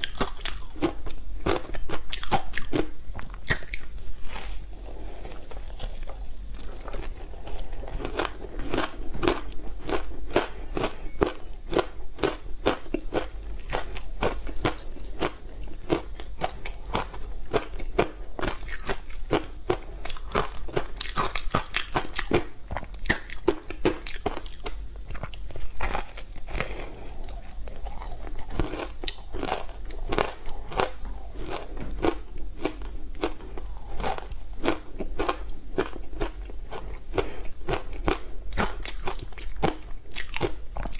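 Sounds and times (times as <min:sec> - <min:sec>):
chewing crunchy ice: 0:00.0 - 0:40.9.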